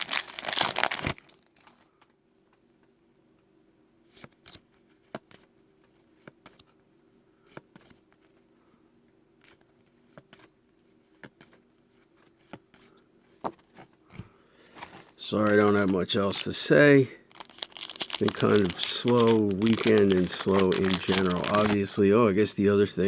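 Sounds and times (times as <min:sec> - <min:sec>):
cards flipping and sliding: 0:18.2 - 0:21.9.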